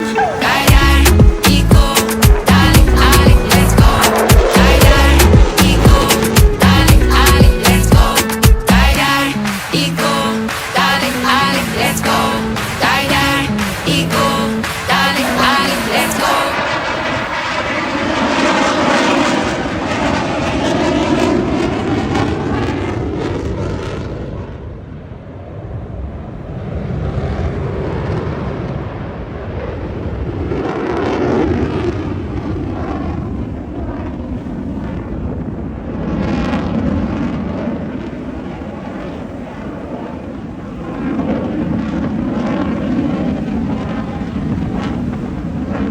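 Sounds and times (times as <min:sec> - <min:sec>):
jet engine roar overhead: 0:00.0 - 0:45.9.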